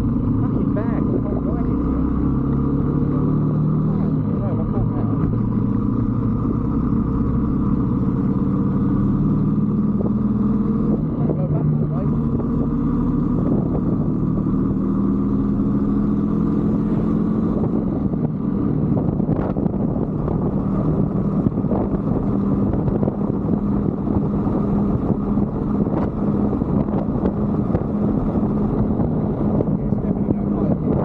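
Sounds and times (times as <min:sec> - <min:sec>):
motorbike engine running steadily: 0:00.0 - 0:31.0
ride rumble: 0:00.0 - 0:31.0.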